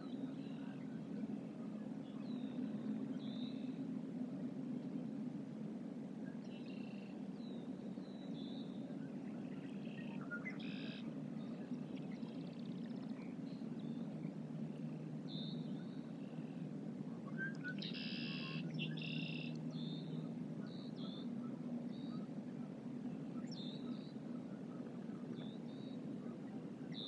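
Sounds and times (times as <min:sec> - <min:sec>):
low steady rumble: 0:00.0 - 0:27.0
small birds chirping: 0:06.4 - 0:14.1, 0:17.3 - 0:21.3, 0:23.1 - 0:27.0.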